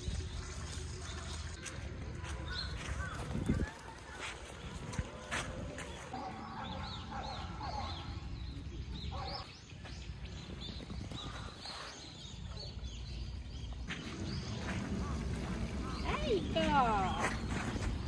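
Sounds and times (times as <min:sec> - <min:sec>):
birds chirping: 0:00.0 - 0:18.0
wind on microphone: 0:02.1 - 0:05.9, 0:10.2 - 0:12.0.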